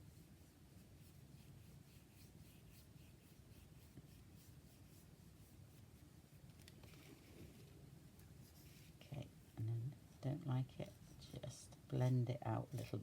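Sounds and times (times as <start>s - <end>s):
brush rubbing on paper: 0.0s - 7.5s, 8.3s - 13.0s.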